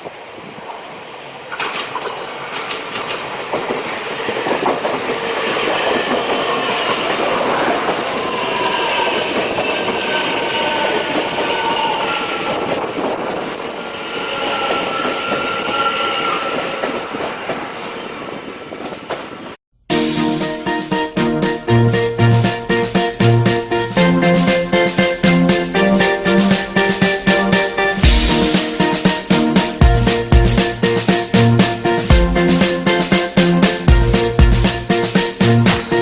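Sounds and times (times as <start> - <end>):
train passing: 0.0 - 19.6
wheels clicking over rail joints: 0.7 - 19.6
high wheel squeal: 1.8 - 18.3.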